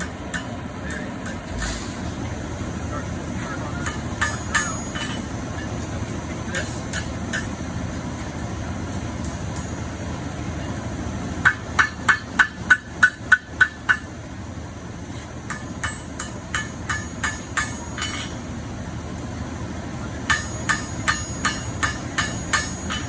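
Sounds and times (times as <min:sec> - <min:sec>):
hammer striking steel on anvil: 0:00.0 - 0:02.4, 0:03.4 - 0:07.8, 0:09.2 - 0:09.8, 0:11.4 - 0:14.2, 0:15.2 - 0:18.5, 0:20.1 - 0:23.0.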